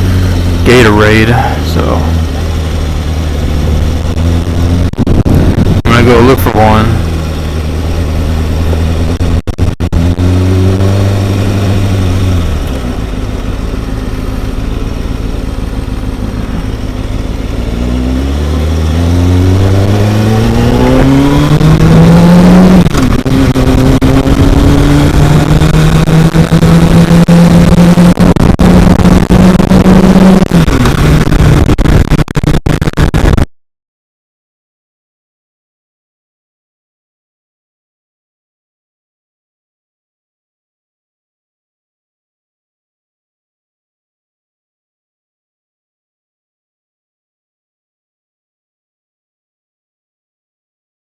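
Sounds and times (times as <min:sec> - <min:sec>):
motorcycle engine revving: 0:00.0 - 0:33.5.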